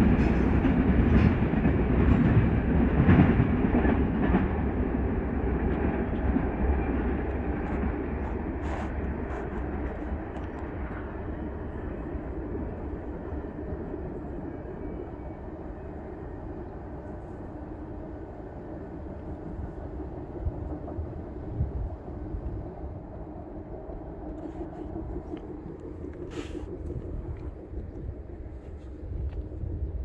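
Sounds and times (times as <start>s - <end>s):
distant freight train rumbling: 0.0s - 30.0s
hissing rustle: 24.3s - 27.2s.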